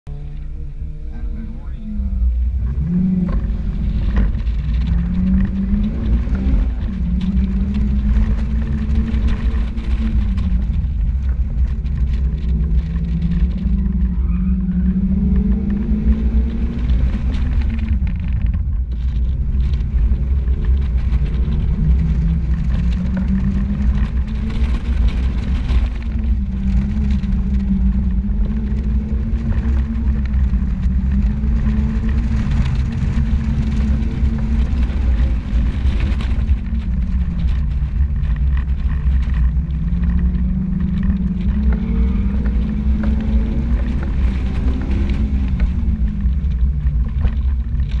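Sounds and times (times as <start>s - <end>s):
car engine revving: 0.0s - 48.0s
heavy low rumble: 0.0s - 48.0s.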